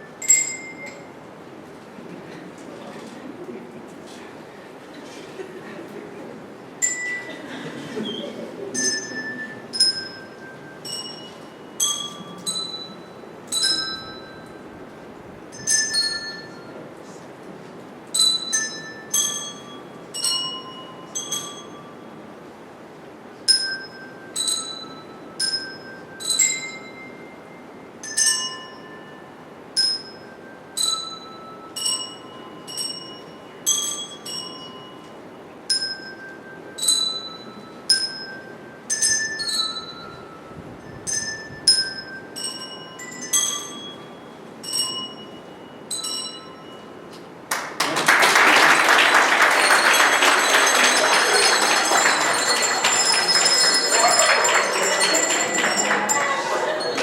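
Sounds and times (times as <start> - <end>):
handbells ringing a melody: 0.0 - 1.2, 6.8 - 7.6, 8.8 - 14.8, 15.4 - 16.8, 18.1 - 22.3, 23.5 - 47.1, 49.0 - 57.0.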